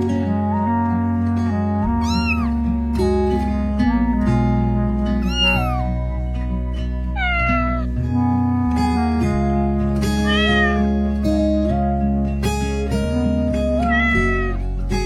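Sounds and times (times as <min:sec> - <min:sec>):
music of held chords: 0:00.0 - 0:15.0
cat meowing: 0:02.0 - 0:02.6, 0:05.2 - 0:05.9, 0:07.1 - 0:08.0, 0:10.2 - 0:10.9, 0:13.8 - 0:14.6.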